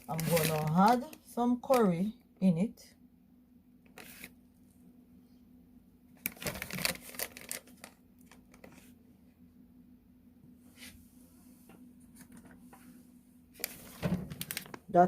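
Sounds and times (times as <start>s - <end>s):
plastic packet crinkling: 0.0s - 2.0s, 6.2s - 8.8s, 13.6s - 14.9s.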